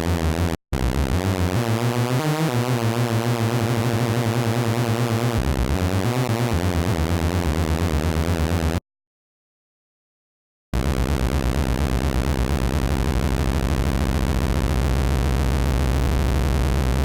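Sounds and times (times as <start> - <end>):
synth lead pulsing low notes: 10.8 - 17.0.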